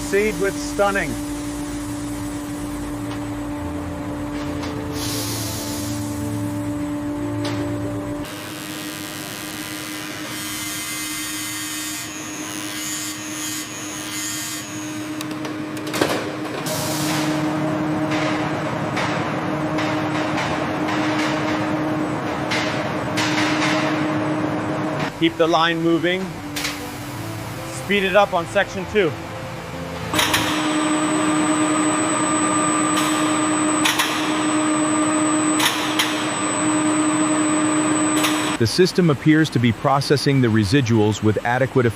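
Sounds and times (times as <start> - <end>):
high whine: 0.0 - 10.0, 14.7 - 38.8
machinery humming and hissing: 0.0 - 41.9
sharp clicks or clanks: 30.1 - 31.1, 32.8 - 34.6, 35.4 - 36.4, 38.1 - 38.6.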